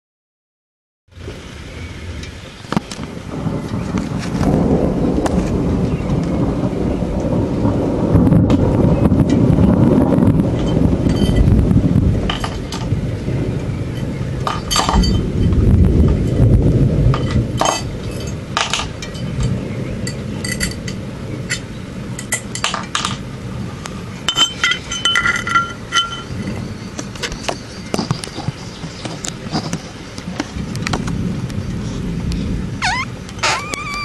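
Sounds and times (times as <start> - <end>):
thunder rumbling: 1.1 - 34.0.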